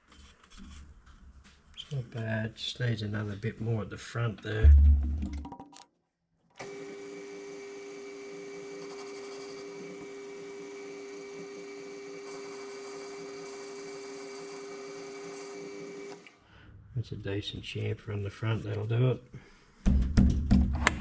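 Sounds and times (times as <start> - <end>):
metal lathe humming: 6.6 - 16.3
lathe tool cutting hiss: 6.6 - 16.4.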